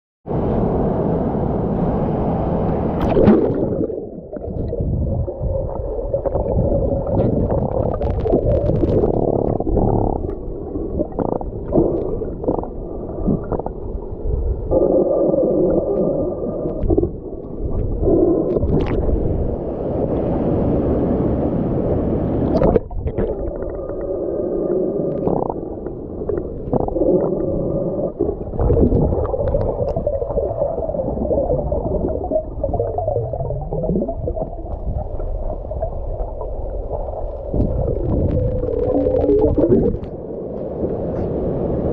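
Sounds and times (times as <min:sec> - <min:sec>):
underwater turbulent water rushing: 0:00.3 - 0:41.9.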